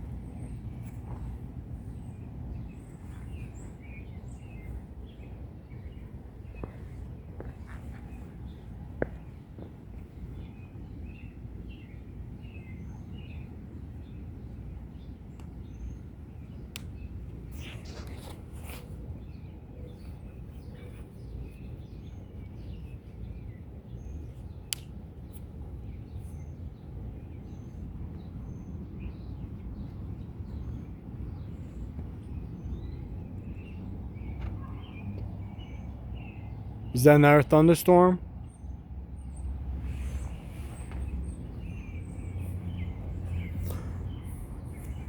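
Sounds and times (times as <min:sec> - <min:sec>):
birds chirping: 0:25.9 - 0:45.0.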